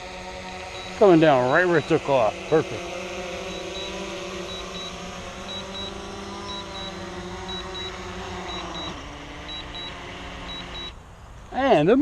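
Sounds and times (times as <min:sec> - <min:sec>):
drone propellers whirring: 0:00.0 - 0:11.5
short high beeps: 0:00.8 - 0:01.6, 0:03.5 - 0:08.9, 0:09.5 - 0:11.0.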